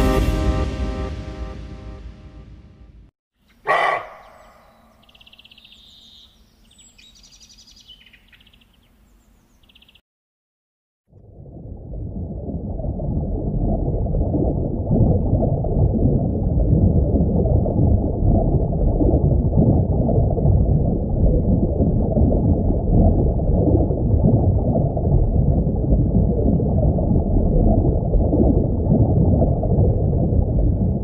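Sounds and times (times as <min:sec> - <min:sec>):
muffled underwater rumble: 0:11.1 - 0:31.0.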